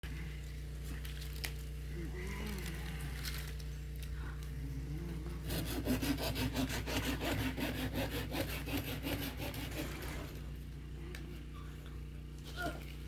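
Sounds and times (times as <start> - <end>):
hand saw cutting branch: 5.4 - 10.2.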